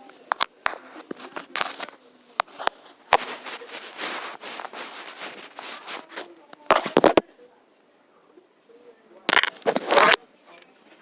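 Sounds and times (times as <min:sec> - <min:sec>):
rustling noise: 0:00.3 - 0:07.2, 0:09.3 - 0:10.2.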